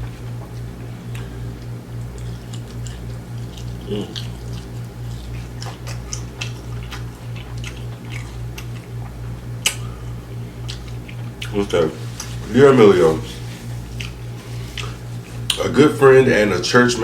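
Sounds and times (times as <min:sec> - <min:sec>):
chewing crispy food: 0:00.0 - 0:15.7
steady low hum: 0:00.0 - 0:17.0
wet mouth sounds: 0:00.4 - 0:09.9, 0:13.9 - 0:15.6.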